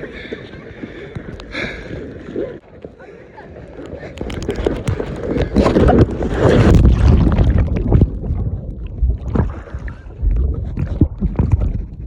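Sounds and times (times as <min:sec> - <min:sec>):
wind on microphone: 0:04.0 - 0:12.0.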